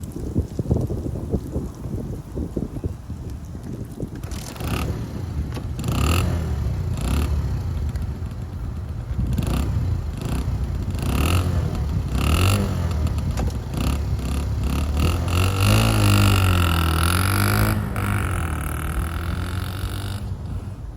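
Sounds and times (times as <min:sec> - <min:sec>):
two-stroke engine revving: 0:04.2 - 0:20.9.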